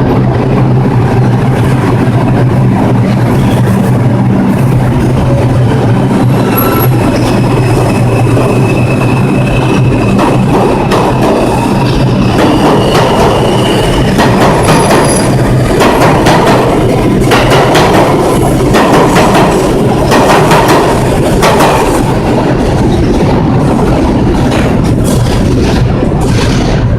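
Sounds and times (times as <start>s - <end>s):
subway train rumbling: 0.0s - 26.9s
high wheel squeal: 6.0s - 15.4s.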